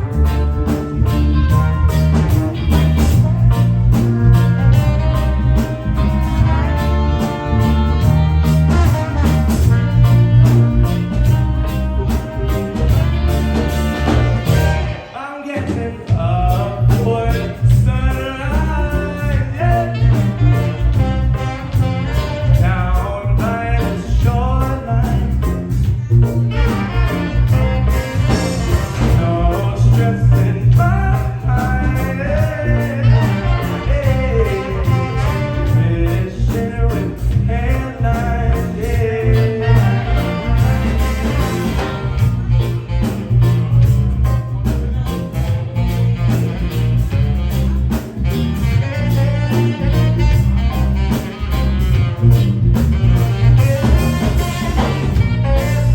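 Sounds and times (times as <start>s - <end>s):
bass line: 0.0s - 55.9s
drums: 0.0s - 55.9s
guitar: 0.0s - 55.9s
horn section: 0.0s - 55.9s
person singing: 27.0s - 41.9s.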